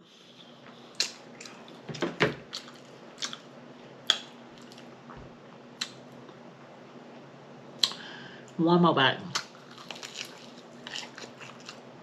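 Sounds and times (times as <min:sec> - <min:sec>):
person chewing food: 0:00.2 - 0:06.4, 0:09.3 - 0:12.0.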